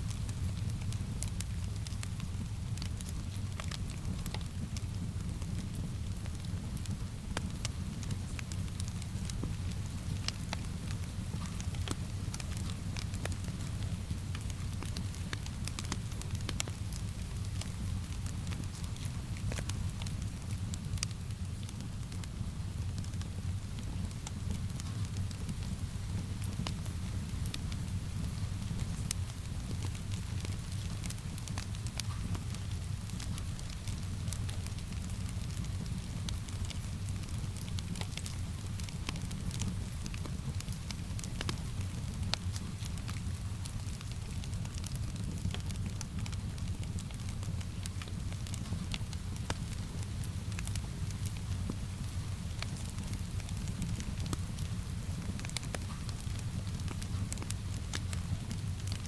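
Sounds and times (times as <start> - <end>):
steady rain: 0.0 - 59.0
wood fire crackling and popping: 0.1 - 59.0.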